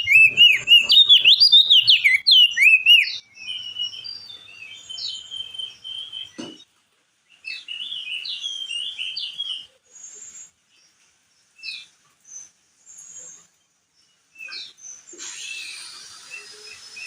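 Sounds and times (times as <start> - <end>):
bird short calls: 0.0 - 3.2
bird chirping song: 0.0 - 17.0.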